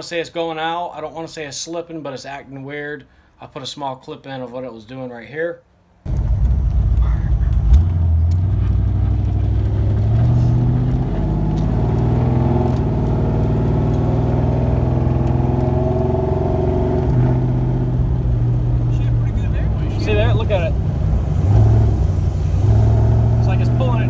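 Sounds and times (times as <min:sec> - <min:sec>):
car engine from inside cabin: 0:06.1 - 0:24.0.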